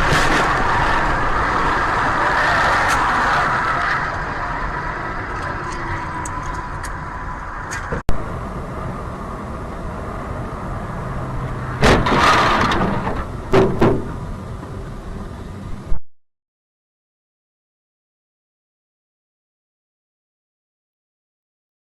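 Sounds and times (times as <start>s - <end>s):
loud sudden noises: 0.0s - 9.6s, 11.2s - 14.6s
car driving noise: 0.0s - 16.0s.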